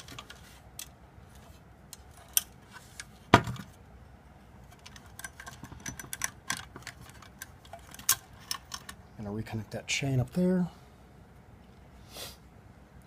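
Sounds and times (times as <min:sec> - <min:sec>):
parts clicking and rattling: 0:00.0 - 0:03.8, 0:04.5 - 0:09.2.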